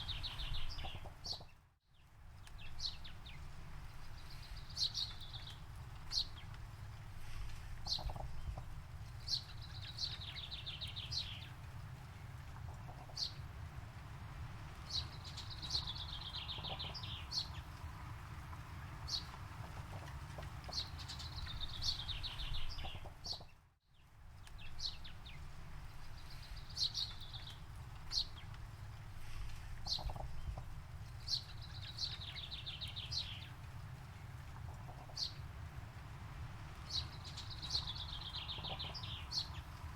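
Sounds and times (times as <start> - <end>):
songbird singing: 0.0 - 7.0, 7.7 - 39.9.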